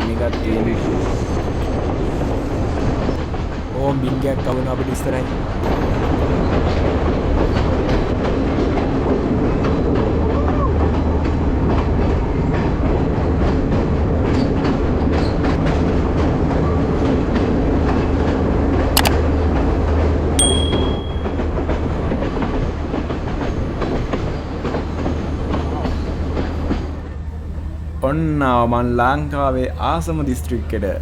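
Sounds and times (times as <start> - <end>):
clickety-clack of rail joints: 0.0 - 31.0
diesel train rumbling: 0.0 - 31.0
thin high tone: 20.4 - 21.5.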